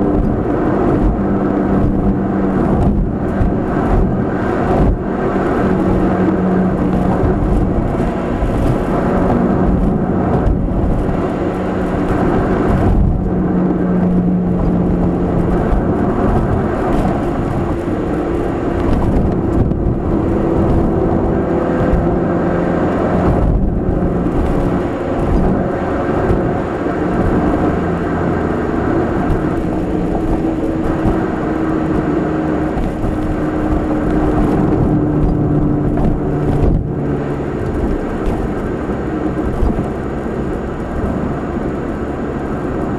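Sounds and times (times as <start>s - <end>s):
car engine droning: 0.0s - 42.9s
road and tyre rumble: 0.0s - 42.9s.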